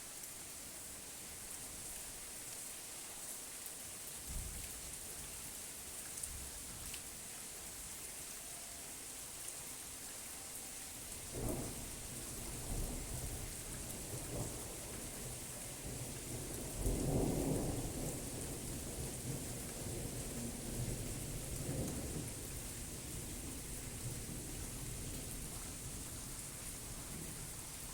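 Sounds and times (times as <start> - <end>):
steady rain falling: 0.0 - 27.9
rolling thunder: 15.9 - 22.4.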